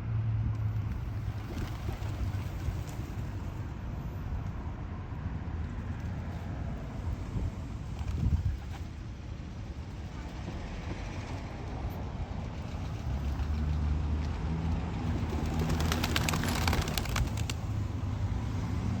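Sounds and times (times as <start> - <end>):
traffic rumble: 0.0 - 19.0
vehicle engine: 4.6 - 19.0
rapid clatter: 15.1 - 17.8.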